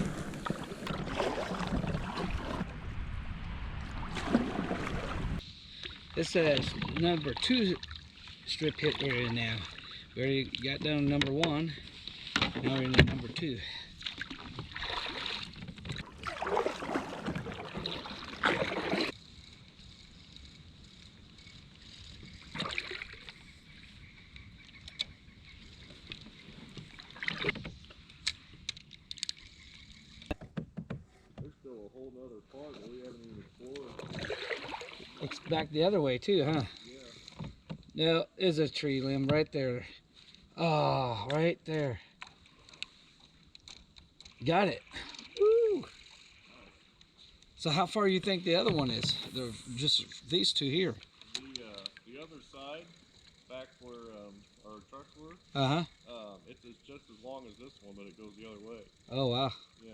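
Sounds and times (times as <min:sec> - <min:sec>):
wind rumbling on microphone: 0:00.0 - 0:05.6
kayak paddle splashing in water: 0:00.0 - 0:19.2, 0:21.8 - 0:23.6, 0:25.6 - 0:27.9, 0:32.8 - 0:35.7
light clicks: 0:50.9 - 0:52.1.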